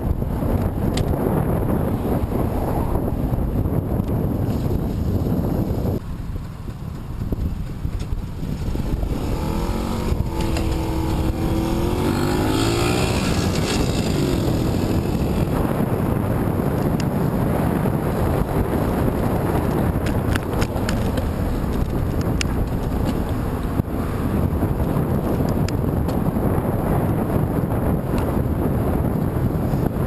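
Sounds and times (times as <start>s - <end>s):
wind buffeting microphone: 0.0s - 30.0s
vehicle engine passing by: 8.4s - 15.8s.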